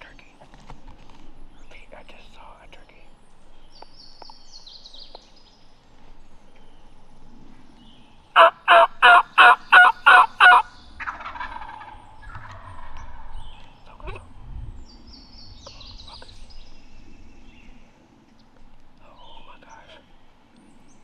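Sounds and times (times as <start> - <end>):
wild turkey yelping: 8.4 - 11.6.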